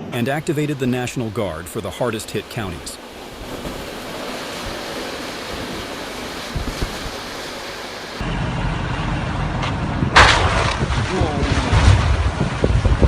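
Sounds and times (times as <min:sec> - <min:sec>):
wind blowing: 0:00.0 - 0:13.0
wind buffeting microphone: 0:02.5 - 0:08.3, 0:09.8 - 0:13.0.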